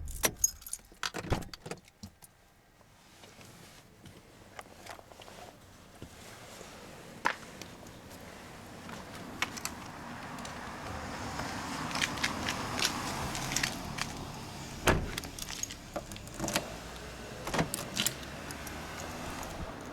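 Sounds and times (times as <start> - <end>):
keys jangling: 0.0 - 1.2.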